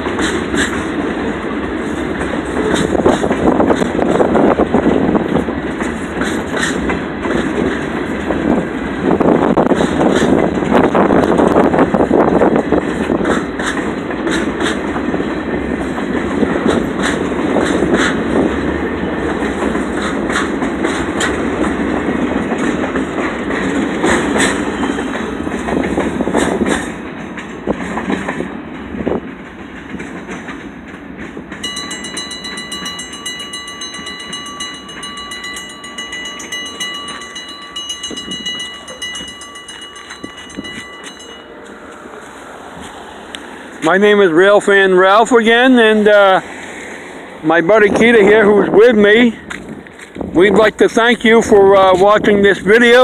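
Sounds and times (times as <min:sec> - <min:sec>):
freight train wheels clacking: 0:00.0 - 0:53.0.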